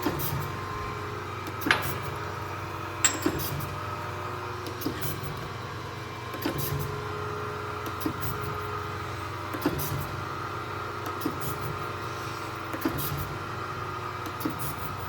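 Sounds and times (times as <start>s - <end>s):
hydraulic table knocking: 1.6s - 2.2s.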